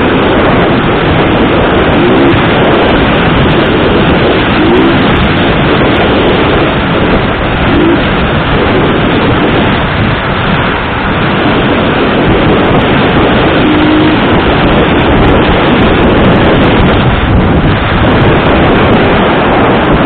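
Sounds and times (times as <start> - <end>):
vehicle road noise: 0.0 - 20.0
wind on microphone: 0.0 - 20.0.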